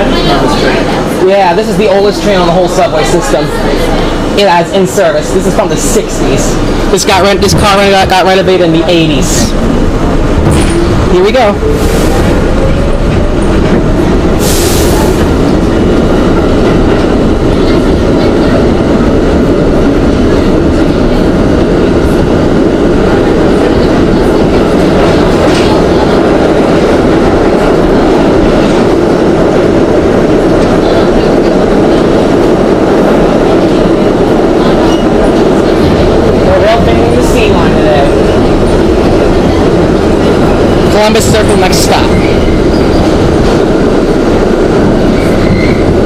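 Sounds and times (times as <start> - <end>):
subway car rumbling: 0.0 - 46.0.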